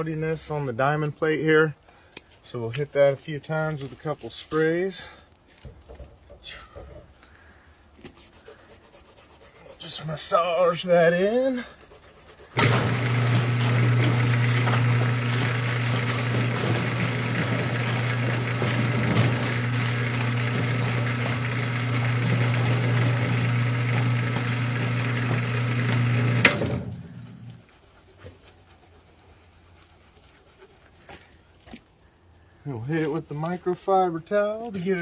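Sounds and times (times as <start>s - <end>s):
power tool motor humming: 12.5s - 27.6s.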